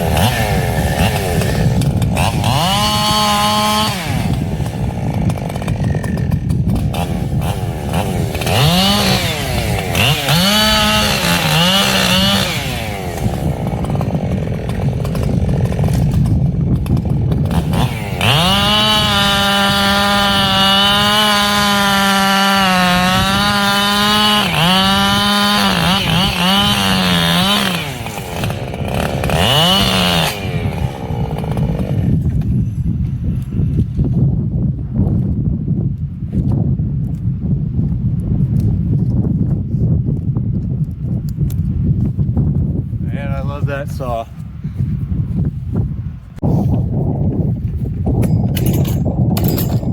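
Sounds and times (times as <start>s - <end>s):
chainsaw cutting wood: 0.0s - 34.2s, 47.8s - 49.9s.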